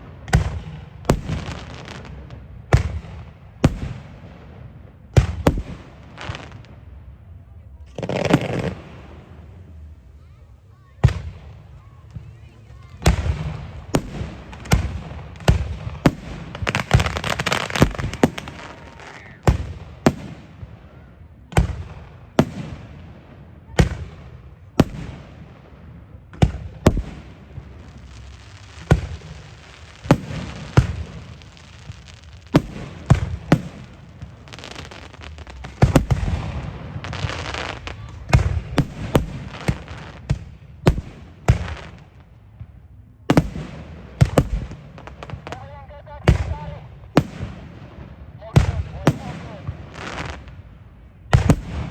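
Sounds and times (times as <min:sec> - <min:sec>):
fireworks hiss and crackle: 0:00.0 - 0:04.5, 0:05.2 - 0:06.9, 0:07.9 - 0:21.0, 0:23.8 - 0:42.7, 0:48.5 - 0:50.7
fireworks bangs: 0:00.0 - 0:51.9.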